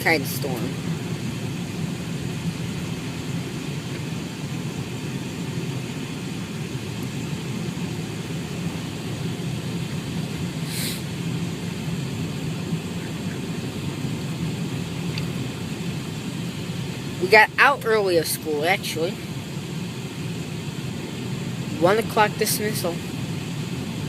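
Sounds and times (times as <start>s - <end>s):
car road and engine rumble: 0.0s - 24.0s
short hiss: 10.6s - 11.1s.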